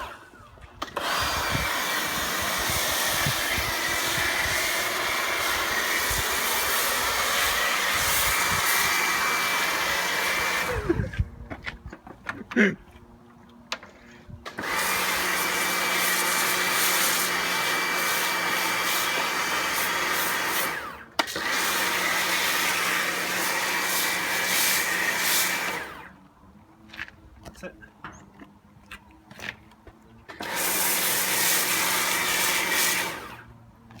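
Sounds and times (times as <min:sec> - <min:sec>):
pressure washer spraying foam: 0:00.8 - 0:11.0, 0:14.5 - 0:26.0, 0:30.4 - 0:33.5.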